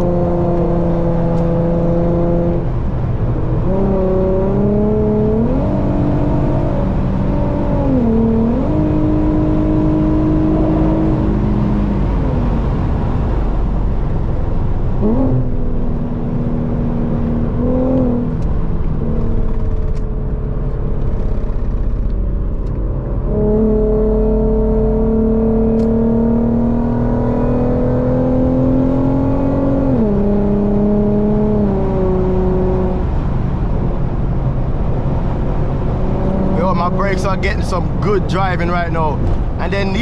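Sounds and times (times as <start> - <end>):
transmission gear change: 0.0 - 1.6, 17.5 - 23.4, 25.0 - 26.4, 35.2 - 40.0
car engine from inside cabin: 0.0 - 40.0
road noise: 0.0 - 40.0.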